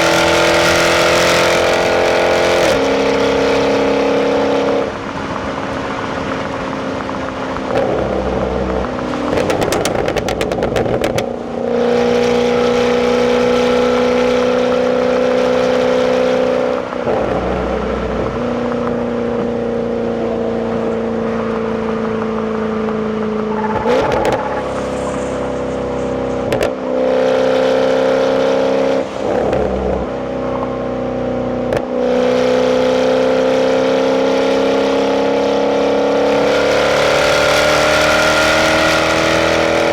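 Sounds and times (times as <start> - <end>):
car engine from inside cabin: 0.2 - 39.9
exhaust crackles: 1.6 - 30.8.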